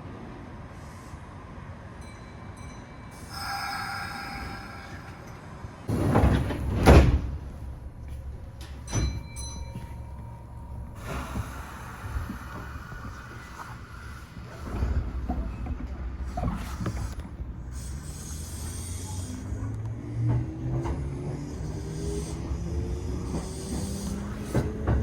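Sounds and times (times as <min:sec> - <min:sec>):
low rumble of stopped train: 0:00.0 - 0:25.0
sliding doors shutting with thud: 0:05.9 - 0:07.7.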